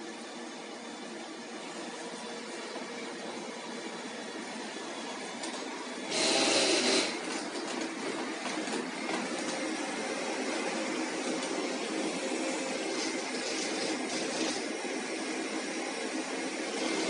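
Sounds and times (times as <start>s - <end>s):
robot vacuum cleaner running: 0.0s - 17.0s
loud burst of noise: 6.1s - 7.2s.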